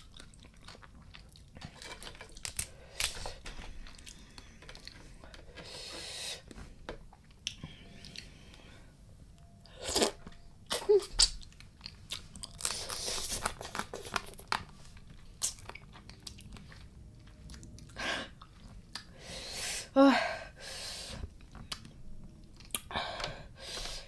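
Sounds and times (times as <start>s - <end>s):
wet chewing: 0.0s - 3.2s, 9.9s - 19.1s.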